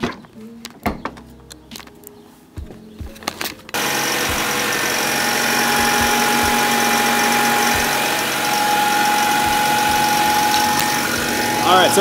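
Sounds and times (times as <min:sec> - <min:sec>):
car engine idling: 0:03.7 - 0:12.0.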